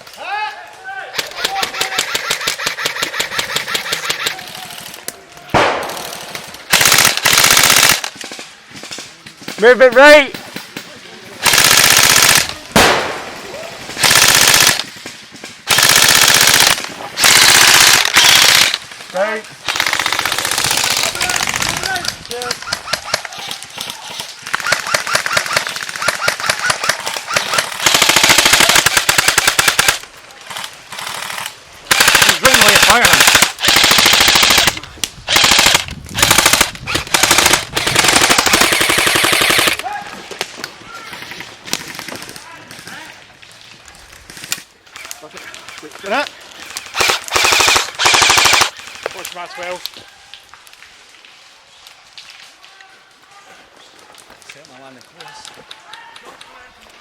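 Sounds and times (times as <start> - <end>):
airsoft guns firing full auto: 1.1 - 8.5, 11.4 - 40.4, 46.6 - 49.0
single sharp gunshot crack: 5.6 - 6.0, 12.8 - 13.4.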